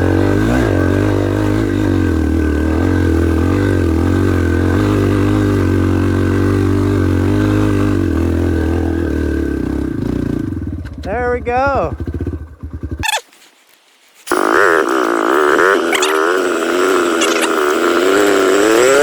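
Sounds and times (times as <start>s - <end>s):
dirt bike engine revving under load: 0.0s - 13.2s, 14.3s - 19.0s.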